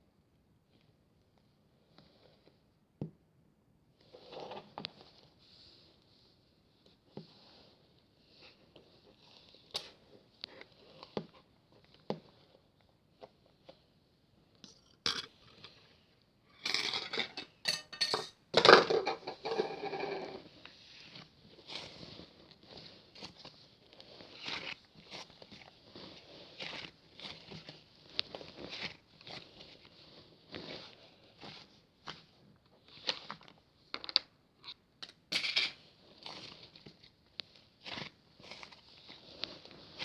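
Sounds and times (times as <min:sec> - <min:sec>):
objects clattering and rattling: 0:16.6 - 0:20.5.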